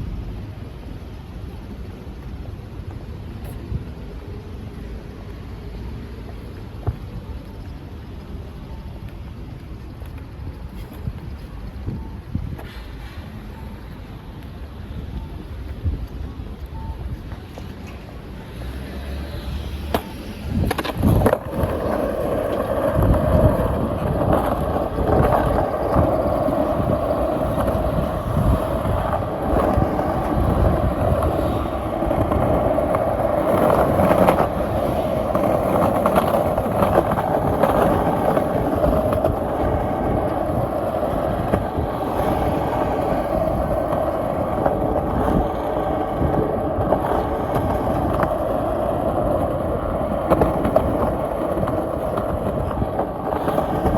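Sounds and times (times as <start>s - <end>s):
skateboard wheels rolling on pavement: 0.0s - 53.9s
skateboard clacks over joints: 19.9s - 53.9s.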